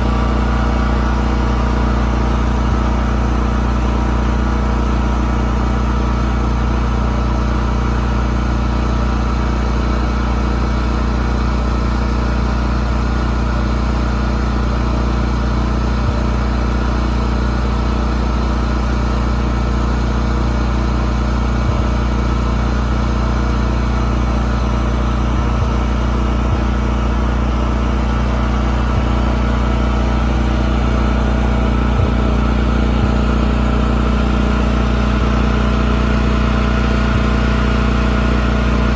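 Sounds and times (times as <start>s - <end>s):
model boat motor humming: 0.0s - 10.5s, 19.2s - 38.9s.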